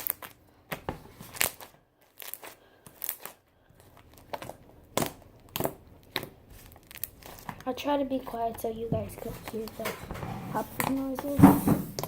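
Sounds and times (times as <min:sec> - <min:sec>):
slime popping and crackling: 0:00.0 - 0:08.6.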